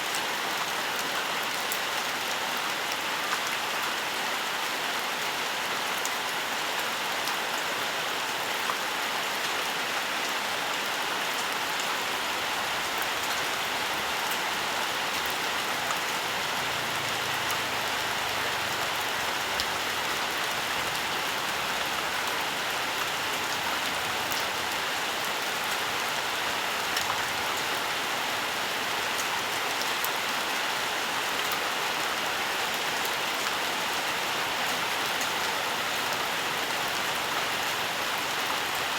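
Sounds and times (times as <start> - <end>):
steady rain hiss: 0.0 - 38.9
raindrops ticking on surfaces: 10.3 - 31.6.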